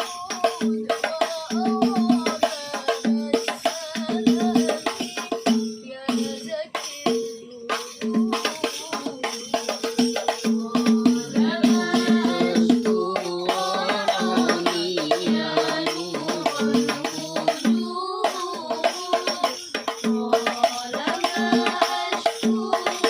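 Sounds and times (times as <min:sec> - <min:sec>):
frame drums playing fast rhythm: 0:00.0 - 0:23.0
person singing: 0:10.6 - 0:23.0.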